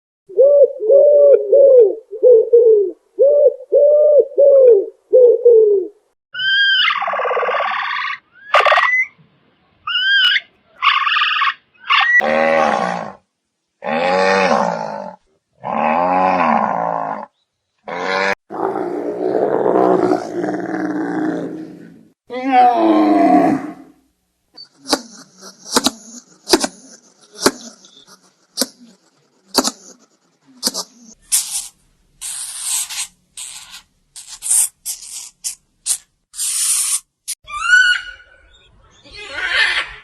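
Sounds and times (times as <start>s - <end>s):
animal calls: 6.4s - 9.2s, 9.8s - 12.3s, 37.4s - 40.0s.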